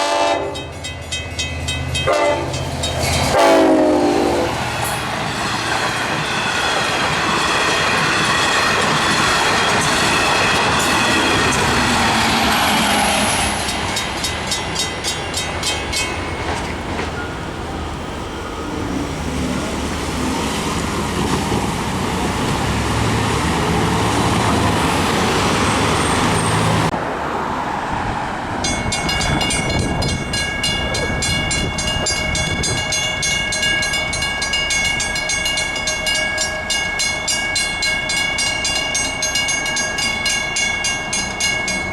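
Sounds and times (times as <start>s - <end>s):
train horn blast: 0.0s - 0.7s, 2.0s - 2.6s, 3.3s - 4.6s
crossing warning bell: 0.0s - 17.8s, 28.6s - 41.9s
train wheels clattering: 4.8s - 17.3s.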